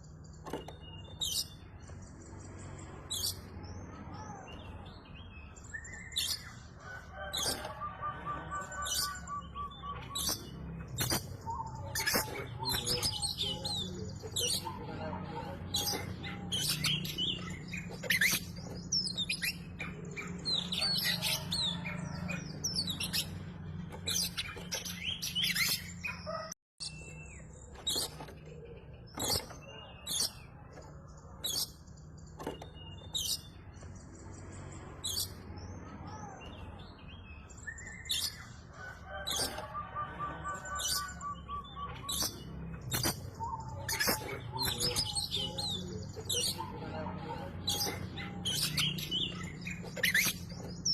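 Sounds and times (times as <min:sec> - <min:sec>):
bird singing chirps and trills: 0:00.0 - 0:50.9.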